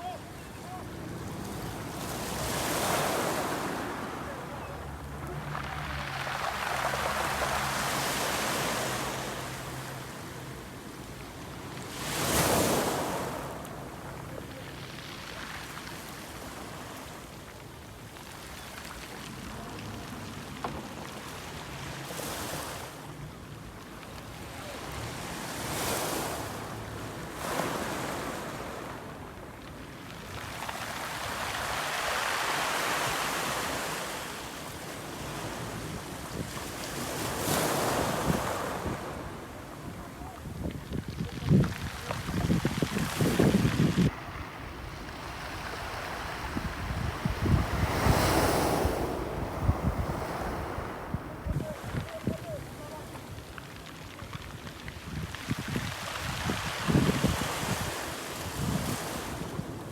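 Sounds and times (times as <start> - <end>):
water rushing past boat: 0.0 - 59.9
wind on microphone: 35.6 - 53.6, 54.4 - 59.9.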